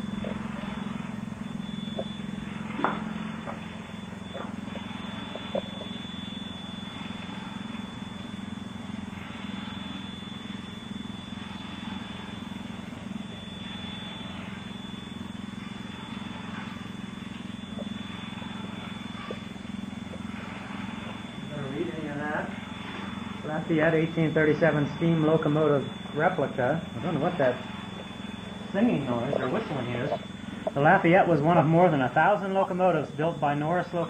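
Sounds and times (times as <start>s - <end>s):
high-pitched whistling tone: 0.0s - 34.0s
steady low hum: 0.0s - 34.0s.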